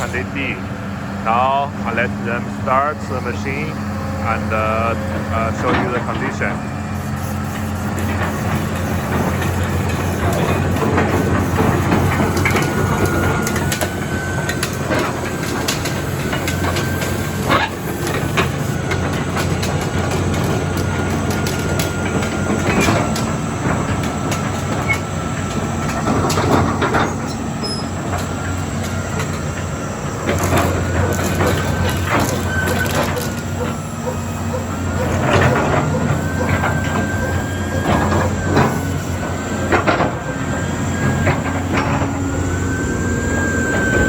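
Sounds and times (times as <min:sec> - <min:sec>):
excavator diesel engine running: 0:00.0 - 0:44.0
metallic clanks and knocks: 0:08.0 - 0:42.2.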